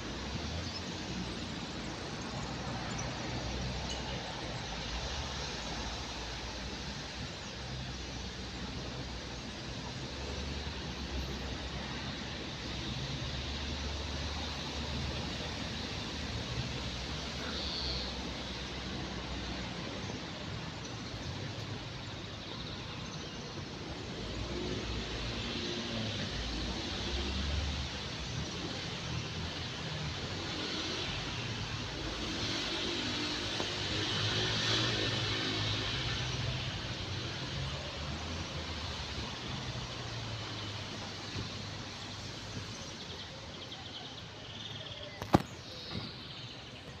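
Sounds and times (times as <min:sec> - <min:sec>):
outdoor background noise: 0:00.0 - 0:47.0.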